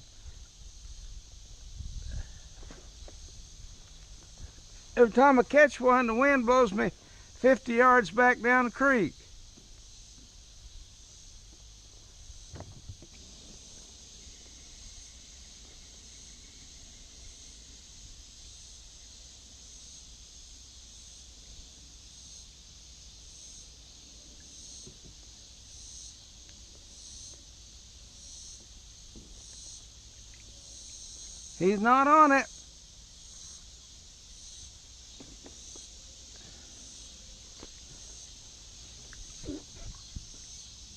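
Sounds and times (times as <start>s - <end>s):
insect chorus buzzing: 0.0s - 40.9s
wind on microphone: 0.3s - 3.8s, 39.2s - 40.4s.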